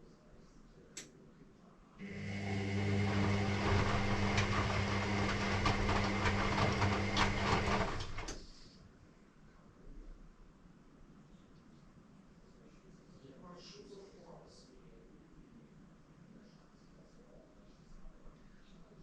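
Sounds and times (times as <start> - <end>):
inlet valve electrical hum: 2.0 - 8.7.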